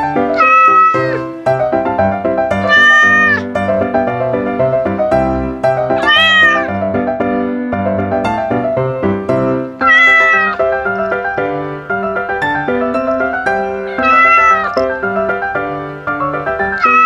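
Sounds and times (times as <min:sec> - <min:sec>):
background music: 0:00.0 - 0:17.0
kitten meowing: 0:00.3 - 0:01.4, 0:02.5 - 0:03.6, 0:05.9 - 0:06.8, 0:09.7 - 0:11.1, 0:13.6 - 0:15.1, 0:16.6 - 0:17.0.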